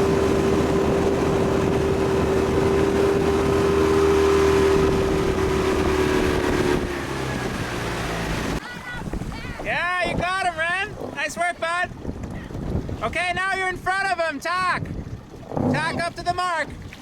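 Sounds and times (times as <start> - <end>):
motorboat engine humming: 0.0 - 17.0
water noise: 0.0 - 17.0
wind: 0.0 - 17.0.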